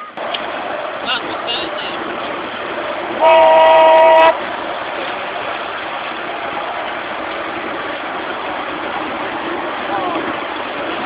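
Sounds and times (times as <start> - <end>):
train running noise: 0.0 - 11.0
locomotive whistle: 3.2 - 4.4.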